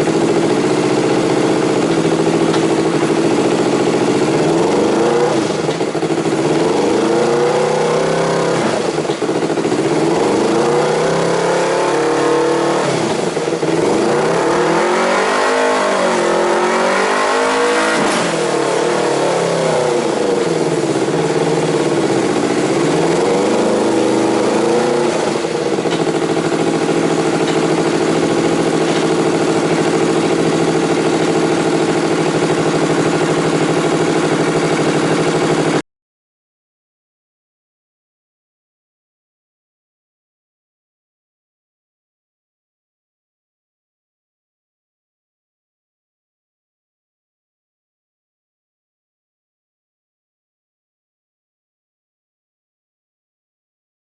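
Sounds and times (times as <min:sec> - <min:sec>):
motorcycle engine revving and idling: 0:00.0 - 0:35.8.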